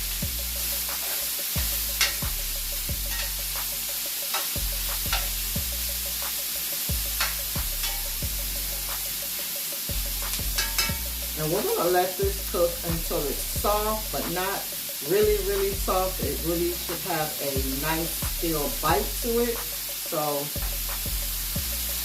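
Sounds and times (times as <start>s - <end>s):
food sizzling in oil: 0.0s - 22.0s
utensil clicking against pan: 0.9s - 2.4s, 3.1s - 5.4s, 7.2s - 8.1s, 10.2s - 11.7s.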